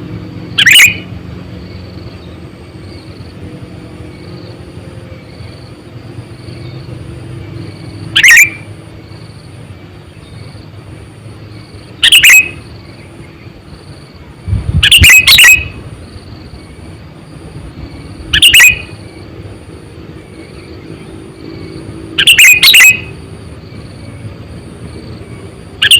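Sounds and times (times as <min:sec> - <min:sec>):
bird giving short loud calls: 0:14.8 - 0:15.8.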